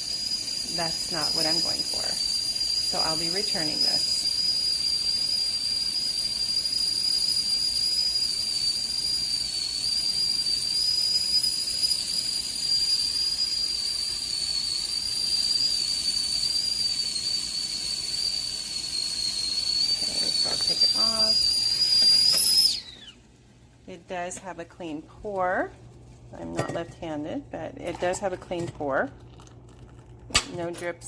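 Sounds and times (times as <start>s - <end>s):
steam hissing: 0.0s - 23.3s
kettle whistling: 0.0s - 31.0s.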